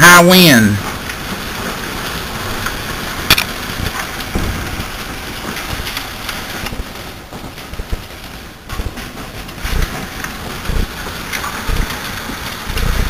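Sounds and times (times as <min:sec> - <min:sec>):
hail and rain falling: 0:00.0 - 0:13.0
hailstones ticking: 0:00.0 - 0:13.0
wind gusts rumbling: 0:00.8 - 0:13.0.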